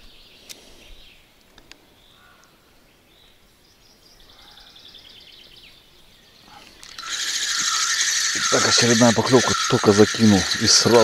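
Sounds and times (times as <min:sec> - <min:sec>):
small birds chirping faintly: 0:00.0 - 0:11.0
rapid bird trill: 0:06.5 - 0:11.0.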